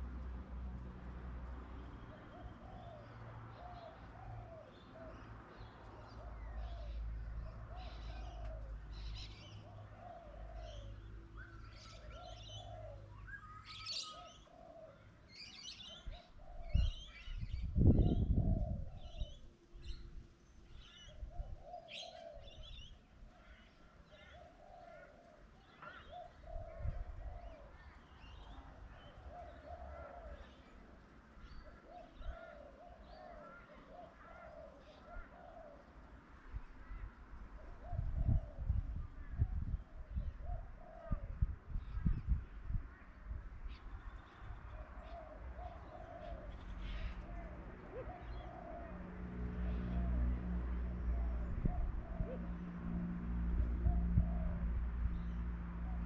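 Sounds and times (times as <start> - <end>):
small birds chirping: 1.8 - 36.2
doves cooing: 6.0 - 11.1, 11.8 - 17.0, 21.1 - 30.9, 44.6 - 52.8.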